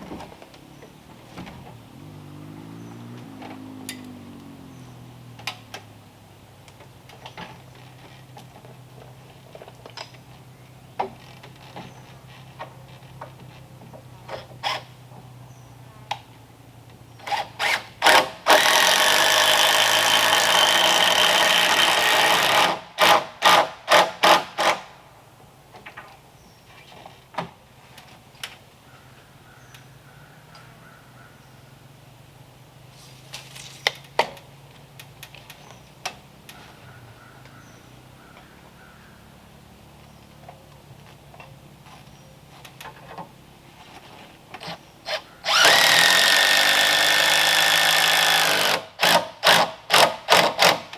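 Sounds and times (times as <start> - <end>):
handheld power tool running: 17.2 - 24.8, 45.1 - 50.9.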